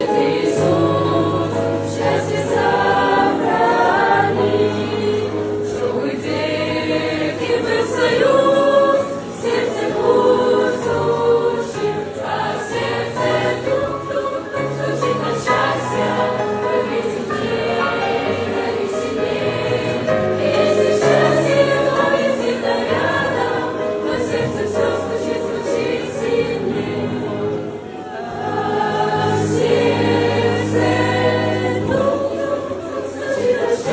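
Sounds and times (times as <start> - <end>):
choir singing: 0.0 - 33.9.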